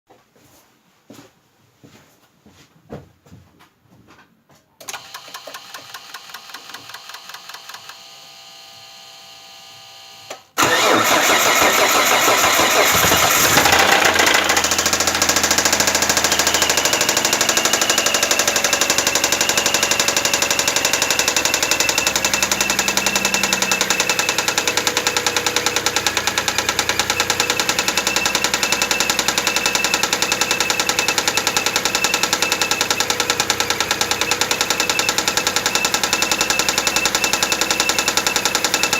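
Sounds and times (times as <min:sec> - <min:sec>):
car engine cold start: 0:10.6 - 0:38.9
engine running with fast knock: 0:10.6 - 0:38.9.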